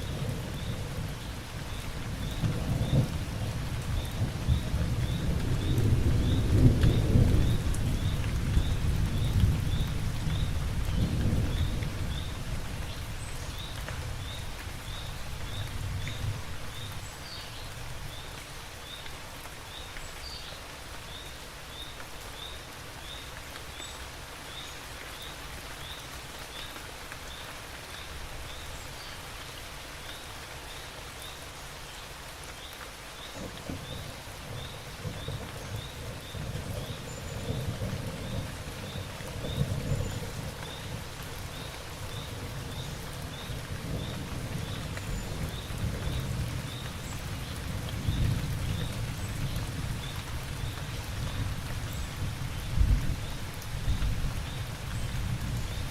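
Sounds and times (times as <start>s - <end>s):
heavy rain: 0.0s - 55.9s
thunder rumbling: 2.1s - 12.2s, 33.4s - 55.9s.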